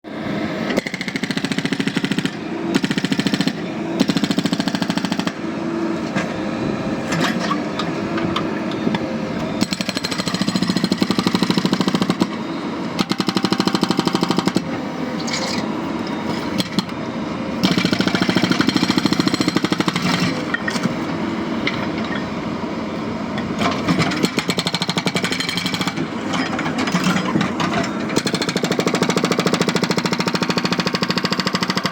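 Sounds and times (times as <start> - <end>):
hydraulic breaker hammering: 9.6 - 17.0, 17.6 - 22.0, 23.4 - 31.9.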